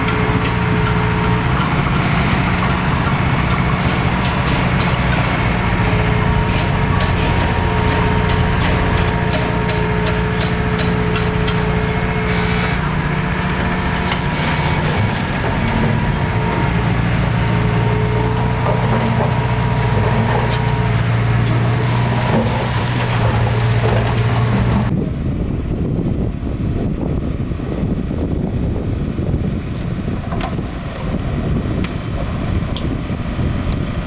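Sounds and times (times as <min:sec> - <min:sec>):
metal clanks and knocks: 0:00.0 - 0:16.8, 0:17.4 - 0:24.9
bulldozer diesel engine running: 0:00.0 - 0:34.0.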